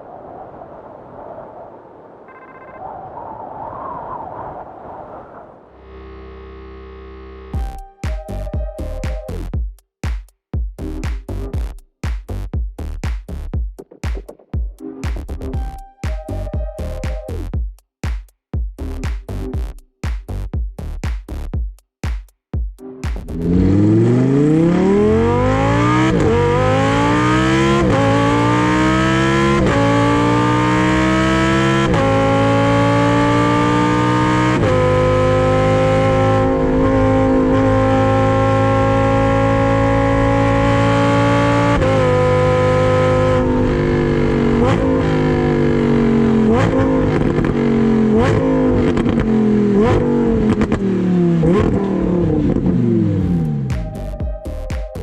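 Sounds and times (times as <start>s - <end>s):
throttle-blipped downshifts: 23.1s - 54.2s
sports car exhaust accelerating: 23.2s - 54.2s.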